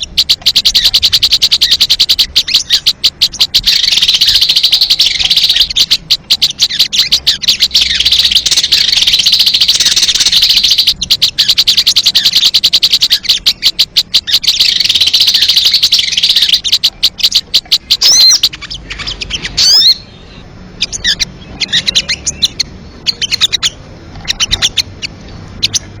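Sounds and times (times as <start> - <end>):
bird lure chittering trill: 0.0 - 20.0
bird lure chirps and whistles: 0.0 - 20.2.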